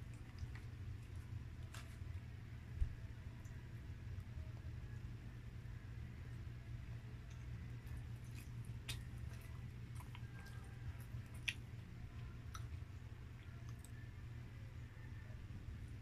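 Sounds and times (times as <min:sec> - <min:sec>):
low hum: 0:00.0 - 0:16.0
wet mouth chewing clicks: 0:11.3 - 0:11.7.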